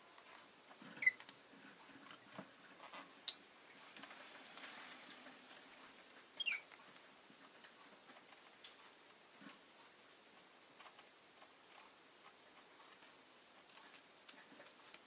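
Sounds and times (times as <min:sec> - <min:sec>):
scratchy tapping and rustling: 0:10.8 - 0:15.0.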